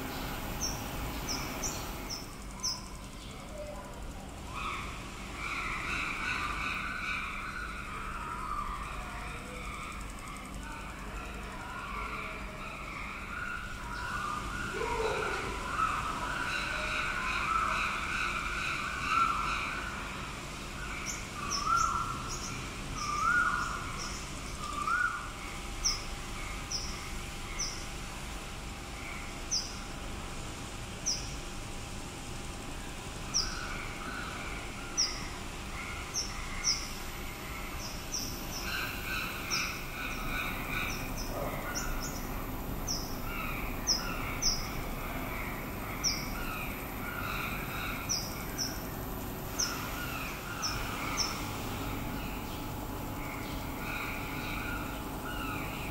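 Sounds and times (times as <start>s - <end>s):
birds chirping: 0.0s - 10.1s, 33.2s - 55.9s
rising bird calls: 11.8s - 20.1s, 33.3s - 55.9s
lower bird chattering: 38.2s - 55.9s.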